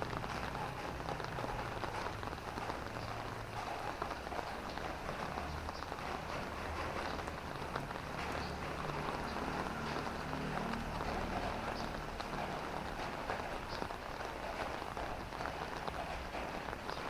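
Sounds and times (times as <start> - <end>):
vehicle engine hum: 0.0 - 15.5
rain pattering on road: 0.0 - 17.0
water drips: 0.0 - 17.0.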